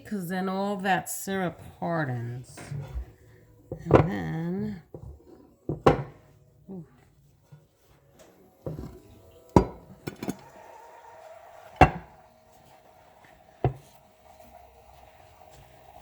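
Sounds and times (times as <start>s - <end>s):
metal baking pan clanking on plate: 9.6s - 10.4s, 11.8s - 12.1s.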